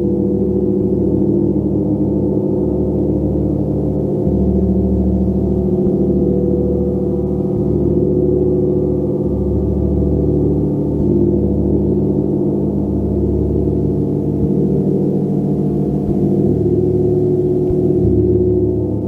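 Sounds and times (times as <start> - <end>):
gong tones: 3.9 - 19.0.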